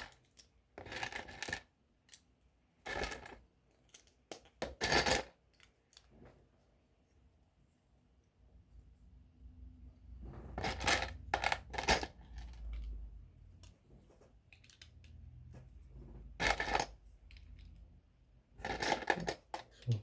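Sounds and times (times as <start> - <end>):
plastic toy bricks clattering: 0.0 - 2.2, 10.6 - 12.9, 14.5 - 15.2, 16.4 - 17.7, 18.6 - 19.8.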